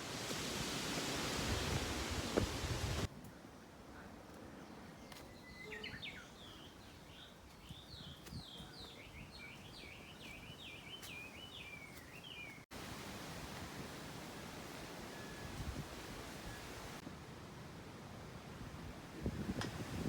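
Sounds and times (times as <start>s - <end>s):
soft outdoor hiss: 0.0s - 20.0s
songbird chirping: 4.5s - 12.7s.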